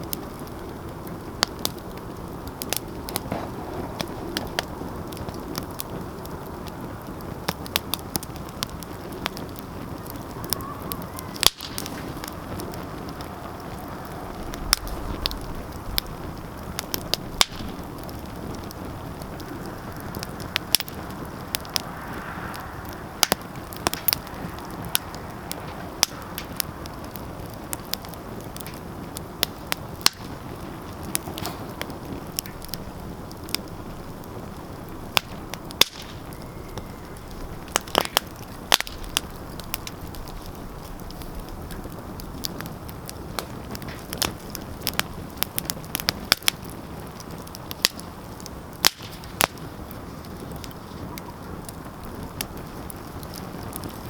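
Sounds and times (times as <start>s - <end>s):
fire crackling in fireplace: 0.0s - 54.0s.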